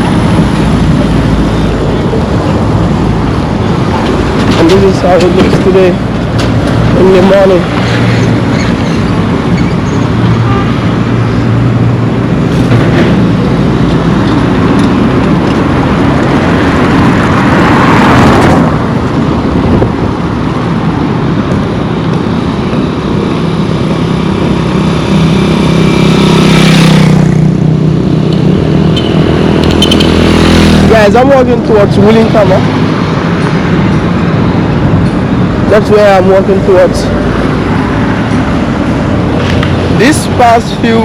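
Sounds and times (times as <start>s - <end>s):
vehicle engine hum passing: 0.0s - 35.7s
highway traffic roar: 0.0s - 41.0s
vehicle passing close: 23.8s - 40.8s.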